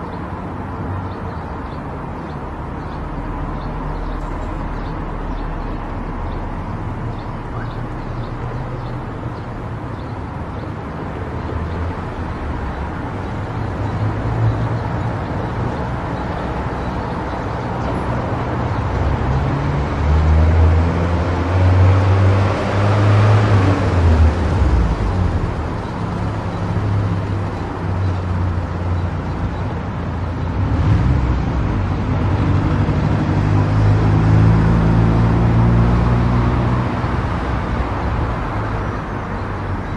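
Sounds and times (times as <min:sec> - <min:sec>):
car engine and tyre noise: 0:00.0 - 0:39.9
vehicle passing by: 0:11.2 - 0:39.9.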